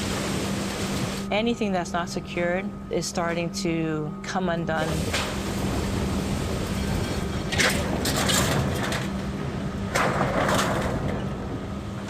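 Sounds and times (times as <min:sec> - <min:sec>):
strong wind buffeting microphone: 0:00.0 - 0:03.0, 0:04.1 - 0:12.0.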